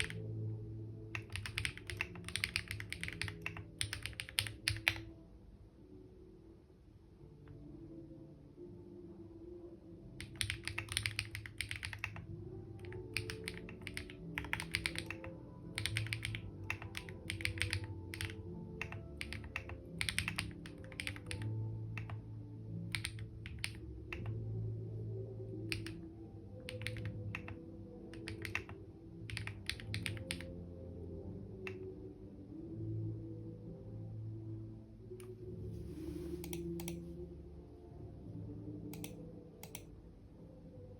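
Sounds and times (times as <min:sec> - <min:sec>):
typing on computer keyboard: 0:00.0 - 0:00.3, 0:01.1 - 0:05.1, 0:10.2 - 0:22.2, 0:22.9 - 0:24.4, 0:25.7 - 0:26.0, 0:26.6 - 0:30.6, 0:36.4 - 0:37.0, 0:38.9 - 0:39.9
soft background music: 0:00.0 - 0:40.9.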